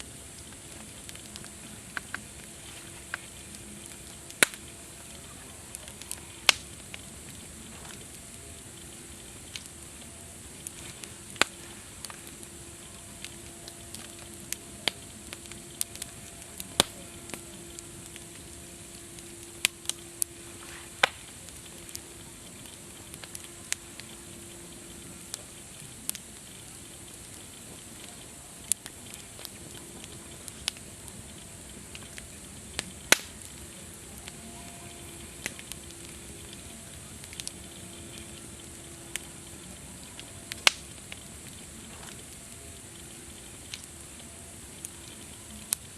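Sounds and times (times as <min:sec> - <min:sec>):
campfire crackling and popping: 0:00.0 - 0:45.9
steady fire hiss: 0:00.0 - 0:45.9.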